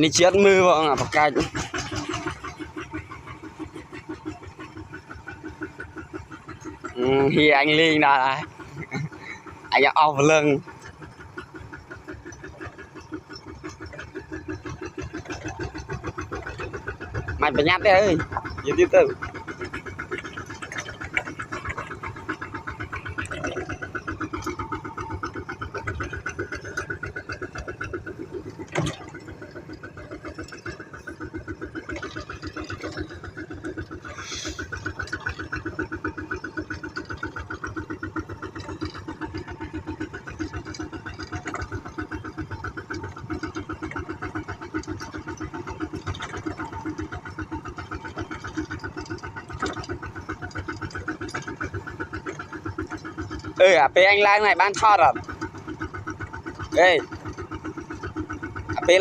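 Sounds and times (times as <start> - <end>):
engine running: 0.0 - 59.0.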